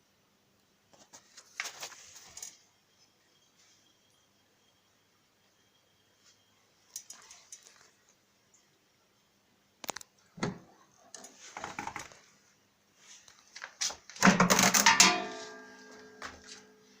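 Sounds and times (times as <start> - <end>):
hard objects knocking and rattling: 14.2 - 15.5
loud metallic clatter: 14.3 - 15.8
ringing metallic tone: 14.9 - 17.0.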